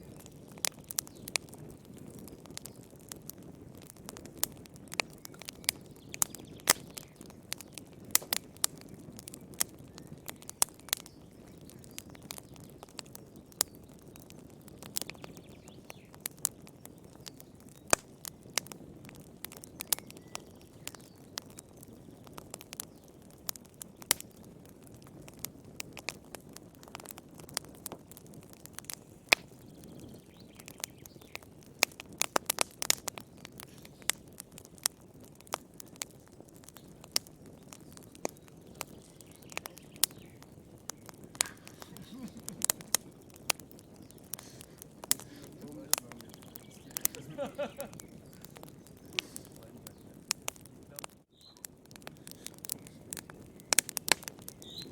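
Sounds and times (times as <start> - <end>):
fire crackles and pops: 0.0 - 54.9
low rumble of flame: 0.0 - 54.9.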